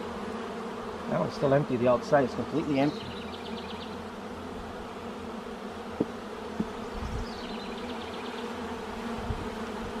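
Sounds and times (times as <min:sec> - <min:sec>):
honeybees buzzing: 0:00.0 - 0:10.0
light knocks: 0:06.0 - 0:06.8.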